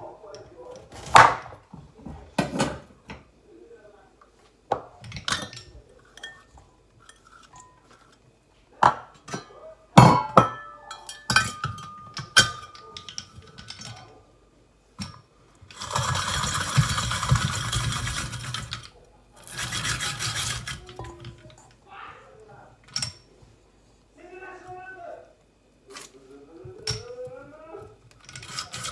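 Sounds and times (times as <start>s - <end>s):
metal kitchenware clinking: 5.0s - 8.2s, 8.8s - 14.1s, 15.0s - 21.7s, 22.8s - 23.3s, 28.2s - 28.9s.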